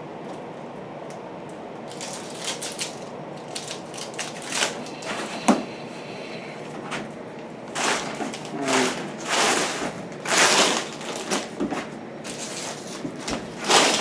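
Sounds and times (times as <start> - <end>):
plastic film ripping and crinkling: 1.9 - 5.3, 7.7 - 14.0.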